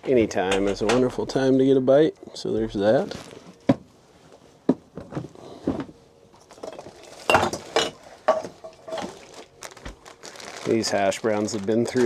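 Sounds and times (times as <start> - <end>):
pan and utensils clinking: 6.5 - 9.3.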